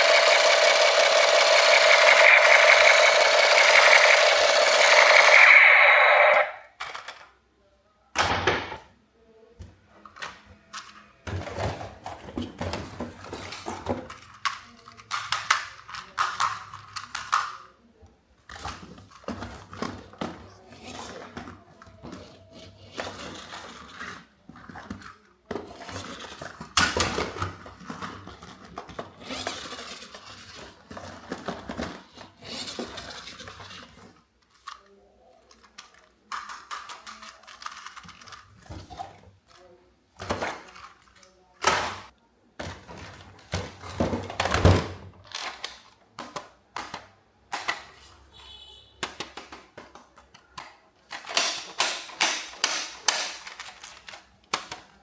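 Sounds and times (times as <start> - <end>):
toys clicking and knocking: 0.0 - 7.3, 13.5 - 17.6, 34.4 - 39.6, 49.0 - 55.0
electronic beeping: 1.1 - 6.6.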